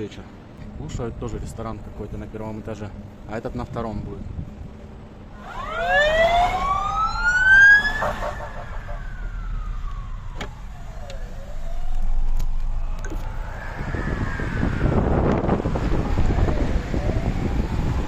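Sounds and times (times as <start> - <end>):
emergency siren wailing: 5.2 - 18.0.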